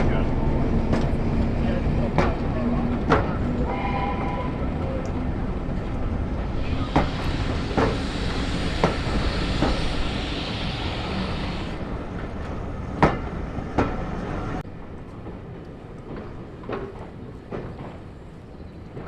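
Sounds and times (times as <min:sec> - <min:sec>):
wheels clicking over rail joints: 0:00.0 - 0:08.0
train rumbling past: 0:00.0 - 0:19.0
hiss: 0:06.6 - 0:11.8.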